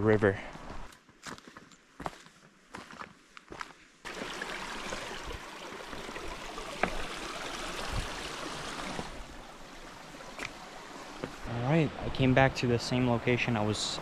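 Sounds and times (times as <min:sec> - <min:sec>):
soft footsteps: 0:00.5 - 0:03.9, 0:10.2 - 0:11.5
river water rushing: 0:04.1 - 0:14.0.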